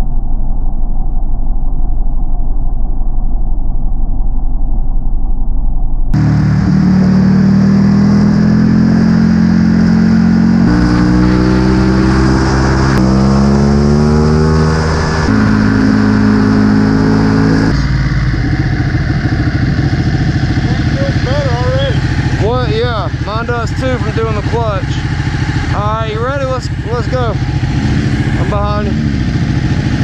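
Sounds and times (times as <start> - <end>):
motorcycle engine accelerating: 6.1 - 30.0.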